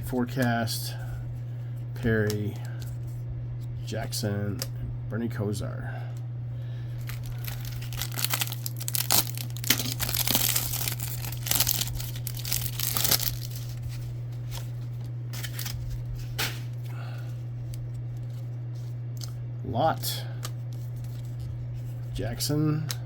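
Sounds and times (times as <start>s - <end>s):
steady low hum: 0.0s - 23.0s
foil wrapper tearing and crinkling: 7.0s - 16.1s.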